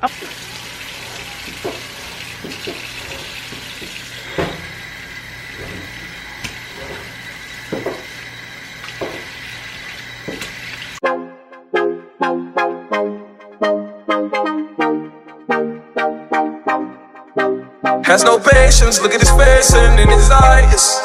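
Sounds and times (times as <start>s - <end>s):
tap water running into sink: 0.0s - 11.0s
knocks against sink: 1.5s - 4.8s, 7.7s - 8.1s, 9.0s - 9.3s, 10.2s - 10.6s
keyboard music: 11.0s - 21.0s.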